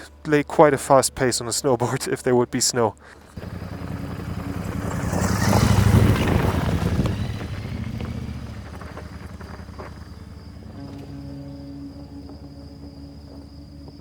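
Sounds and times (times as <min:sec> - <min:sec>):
motorcycle engine running: 0:03.3 - 0:14.0.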